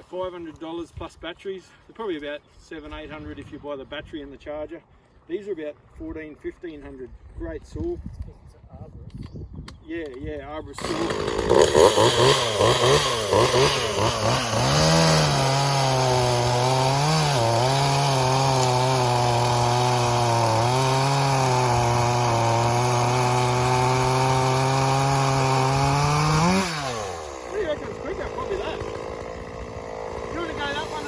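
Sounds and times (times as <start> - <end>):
chainsaw engine revving and idling: 10.8 - 31.0.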